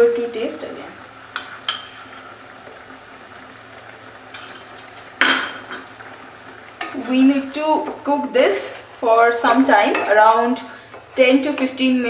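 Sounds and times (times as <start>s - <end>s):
food sizzling in a frying pan: 0.0s - 12.0s
utensil clattering against pan: 4.3s - 5.9s.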